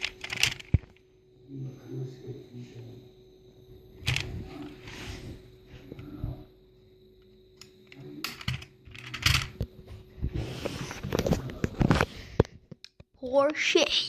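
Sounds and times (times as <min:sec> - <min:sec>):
toy cars clicking and rustling: 0:00.0 - 0:00.8, 0:08.2 - 0:09.6.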